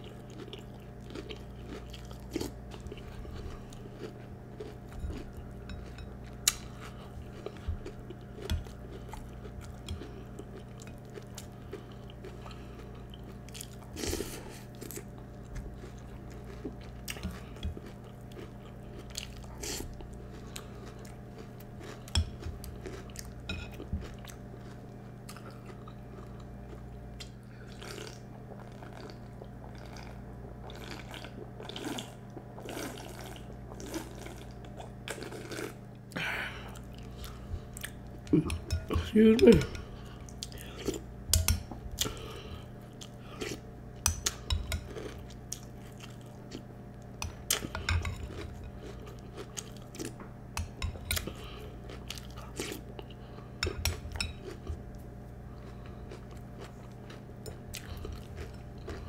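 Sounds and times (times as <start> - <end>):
person crunching cereal: 0.0 - 5.3
steady low hum: 0.0 - 59.0.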